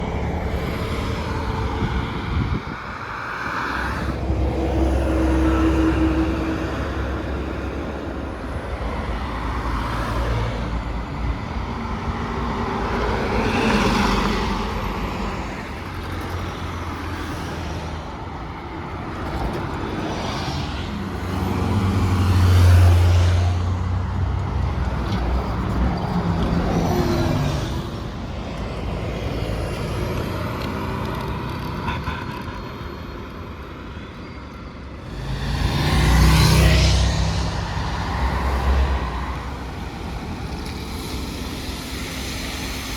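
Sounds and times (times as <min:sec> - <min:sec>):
buses passing: 0:00.0 - 0:42.9.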